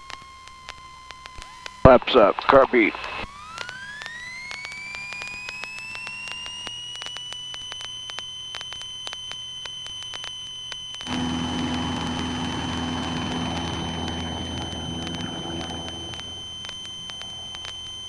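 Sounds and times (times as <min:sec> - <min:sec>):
high electrical whine: 0:11.1 - 0:18.0
rapid ignition ticking: 0:11.1 - 0:18.0
rushing noise with low hum: 0:11.1 - 0:18.0.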